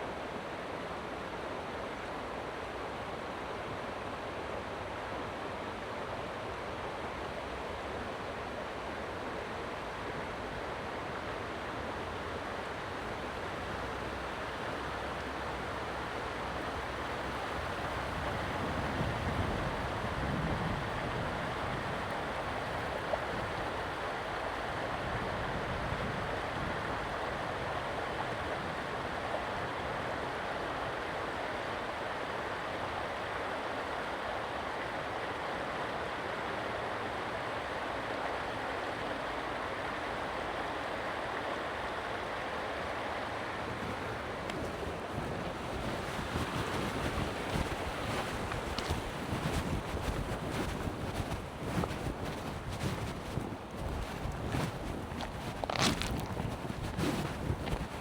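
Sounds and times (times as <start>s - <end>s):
creek water rushing: 11.2s - 58.0s
wind buffeting microphone: 15.7s - 30.0s, 43.7s - 58.0s.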